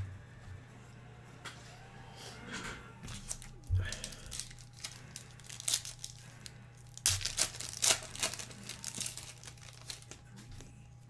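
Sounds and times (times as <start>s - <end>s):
card pack wrapper crinkling: 3.1s - 10.2s.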